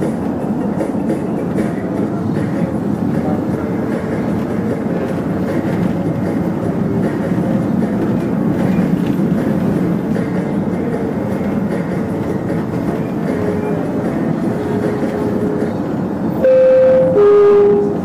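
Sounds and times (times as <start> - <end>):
train rumbling: 0.0 - 18.0
train horn: 16.4 - 18.0.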